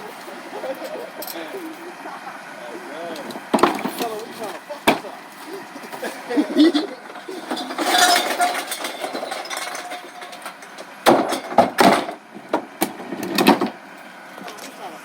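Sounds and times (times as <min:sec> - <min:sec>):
recycling rustling and scraping: 0:00.0 - 0:15.0
items knocking and banging: 0:03.3 - 0:05.1, 0:05.9 - 0:13.8.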